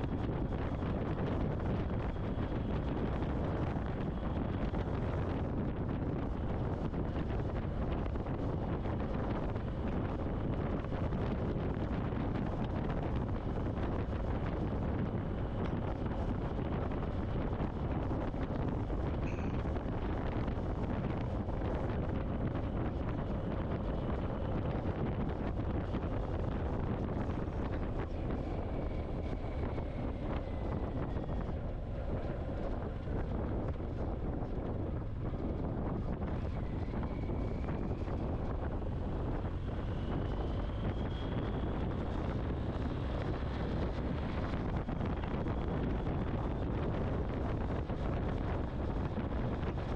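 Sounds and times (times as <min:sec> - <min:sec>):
wind rushing over microphone: 0:00.0 - 0:49.9.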